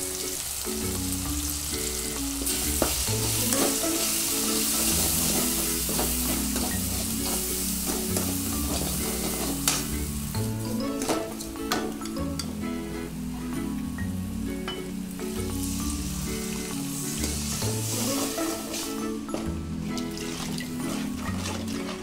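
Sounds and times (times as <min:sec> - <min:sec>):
oil sizzling in a pan: 0:00.0 - 0:22.0
ladle stirring and scraping: 0:02.5 - 0:12.6, 0:16.4 - 0:22.0.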